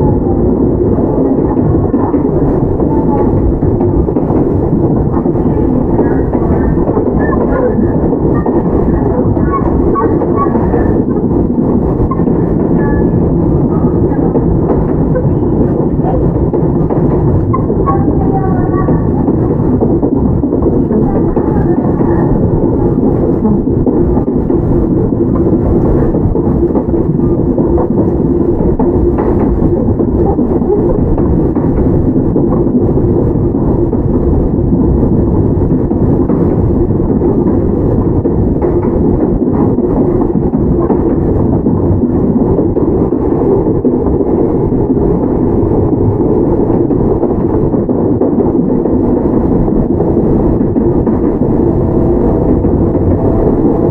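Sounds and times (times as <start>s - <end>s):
train wheels rumbling on rails: 0.0s - 53.9s
low hum of running gear: 19.0s - 53.9s.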